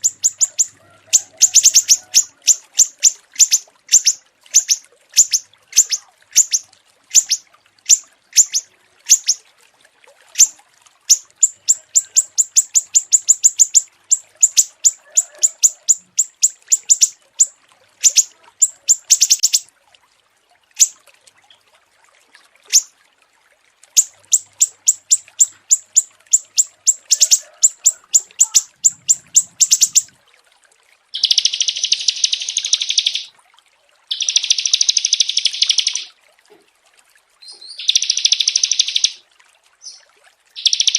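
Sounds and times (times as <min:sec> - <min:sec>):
buzzy bird trills: 0:00.0 - 0:09.4, 0:11.1 - 0:19.6, 0:22.7 - 0:22.9, 0:24.0 - 0:30.1, 0:31.2 - 0:33.3, 0:34.1 - 0:36.1, 0:37.8 - 0:39.2, 0:40.6 - 0:40.9
songbirds whistling: 0:00.0 - 0:09.4, 0:11.1 - 0:19.6, 0:24.0 - 0:30.1, 0:31.2 - 0:33.3, 0:34.1 - 0:36.1, 0:37.5 - 0:39.2, 0:40.6 - 0:40.9.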